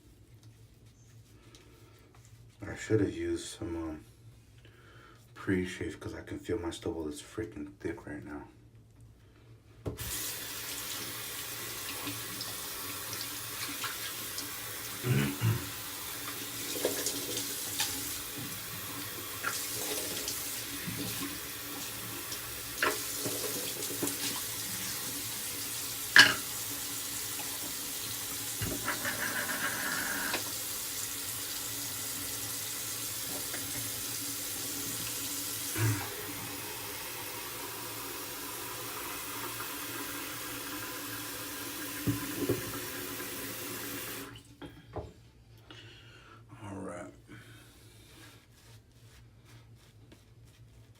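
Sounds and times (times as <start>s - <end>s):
tap water running into sink: 9.9s - 15.0s, 15.6s - 44.4s.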